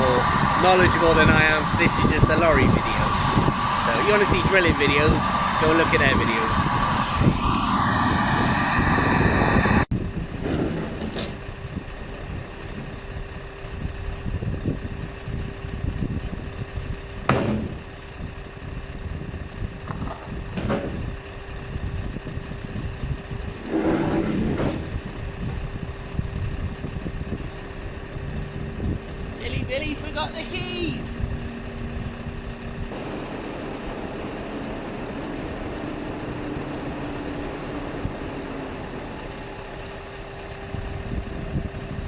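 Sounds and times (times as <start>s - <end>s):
vehicle engine idling: 11.3s - 42.0s
knocks and clunks: 17.3s - 17.8s.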